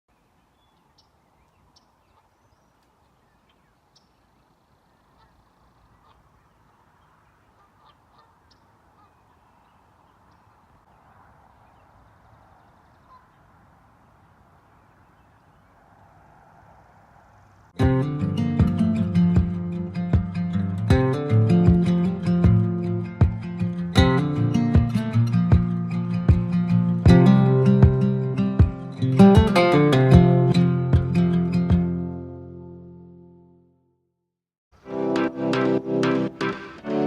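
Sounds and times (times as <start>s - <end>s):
distant birds chirping: 0.1s - 17.8s.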